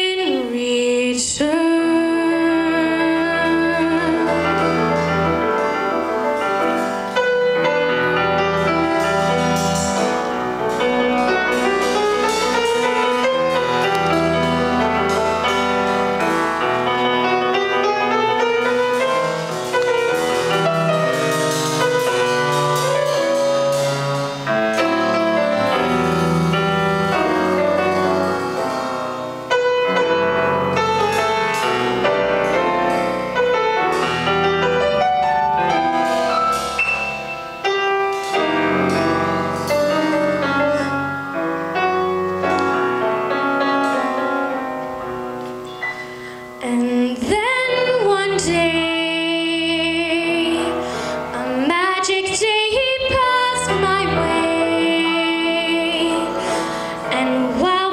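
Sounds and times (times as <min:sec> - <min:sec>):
piano melody: 0:00.0 - 0:57.9
low bass notes: 0:02.1 - 0:45.6.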